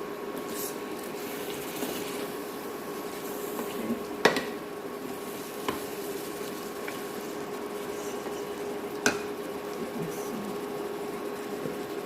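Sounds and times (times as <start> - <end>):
curry sizzling in a pot: 0.0 - 12.0
steady hum: 0.0 - 12.0.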